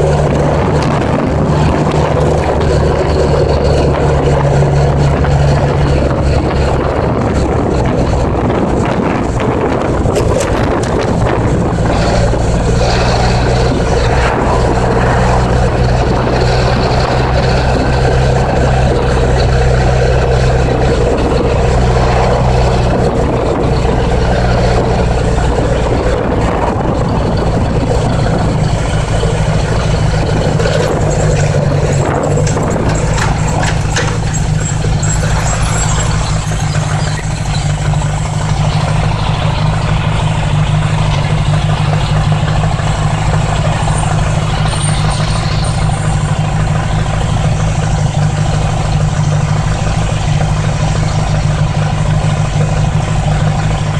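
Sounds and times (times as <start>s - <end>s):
motorcycle engine running: 0.0s - 53.9s
wind noise: 0.0s - 53.9s.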